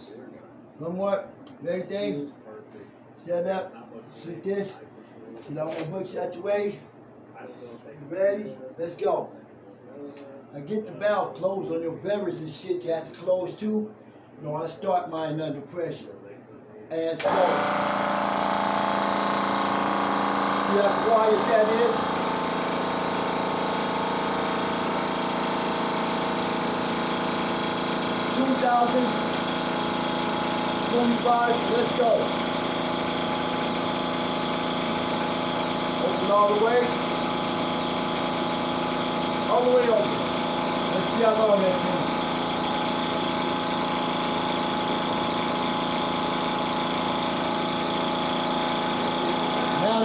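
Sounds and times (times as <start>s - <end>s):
air compressor humming: 17.0s - 50.0s.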